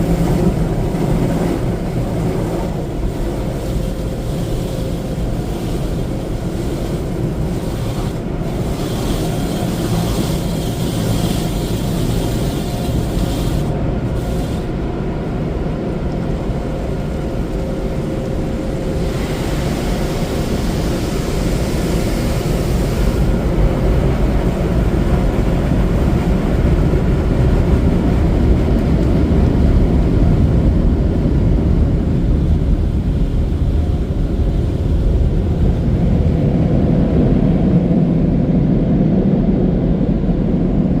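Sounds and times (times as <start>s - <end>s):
rushing hiss of water: 0.0s - 14.8s, 18.7s - 24.4s
car wash machinery rumble: 0.0s - 41.0s.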